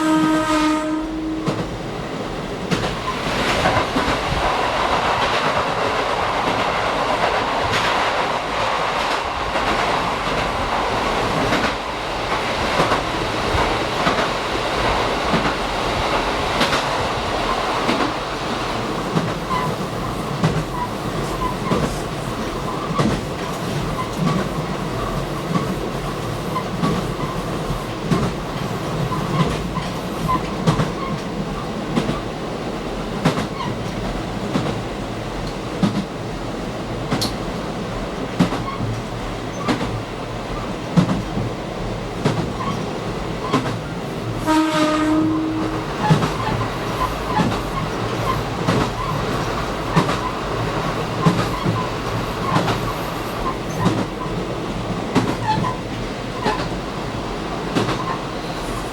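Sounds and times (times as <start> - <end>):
train running noise: 0.0 - 58.9
wheels clicking over rail joints: 45.7 - 54.3.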